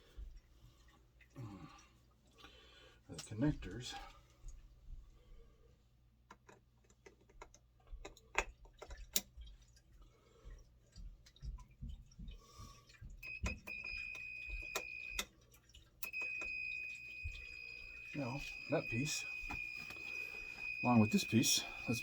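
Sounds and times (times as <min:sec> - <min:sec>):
steady high-pitched beep: 0:13.3 - 0:15.2, 0:16.1 - 0:22.0.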